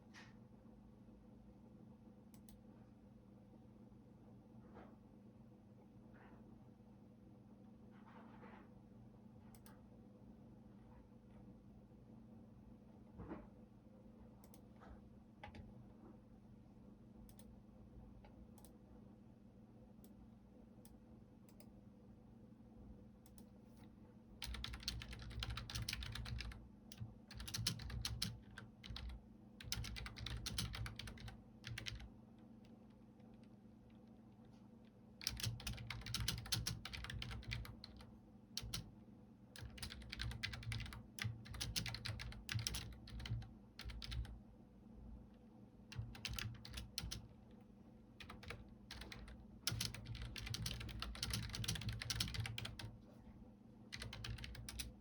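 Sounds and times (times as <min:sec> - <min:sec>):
faint low hum: 0:00.0 - 0:55.0
typing on computer keyboard: 0:15.4 - 0:15.7, 0:24.4 - 0:33.6, 0:35.2 - 0:38.9, 0:39.6 - 0:44.4, 0:45.9 - 0:47.4, 0:48.2 - 0:53.0, 0:53.9 - 0:55.0.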